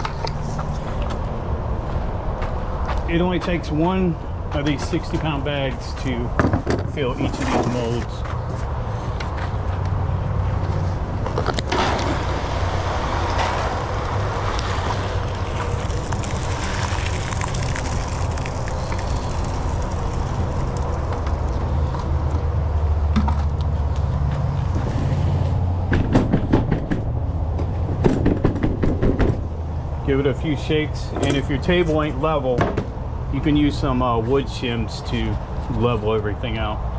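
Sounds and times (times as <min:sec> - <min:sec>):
constant low hum: 0:00.0 - 0:36.9
wet concrete pouring: 0:11.6 - 0:22.0.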